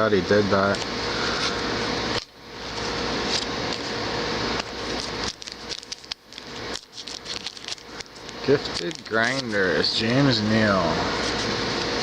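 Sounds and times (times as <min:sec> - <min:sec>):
faint hum: 0:00.0 - 0:12.0
cards clicking and rustling: 0:00.7 - 0:03.9, 0:04.6 - 0:10.4.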